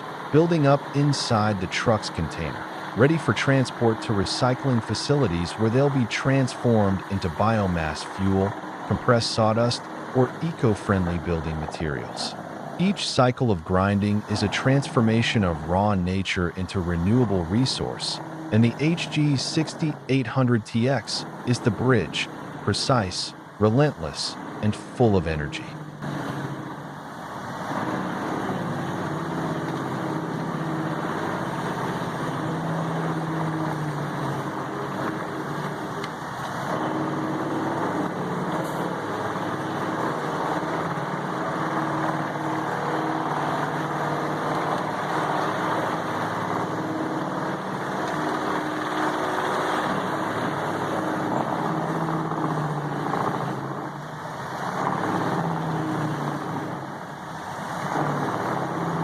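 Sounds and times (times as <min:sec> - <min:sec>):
diesel engine drone: 0:00.0 - 0:59.0.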